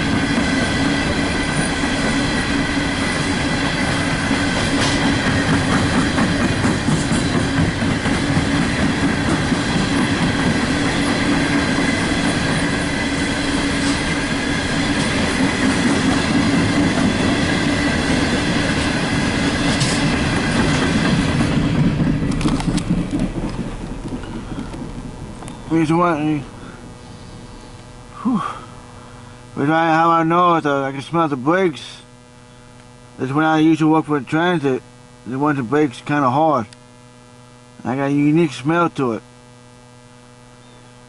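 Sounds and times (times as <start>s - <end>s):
wheels clacking over rail joints: 0.0s - 18.0s, 18.6s - 25.5s
freight train rumble: 0.0s - 28.1s.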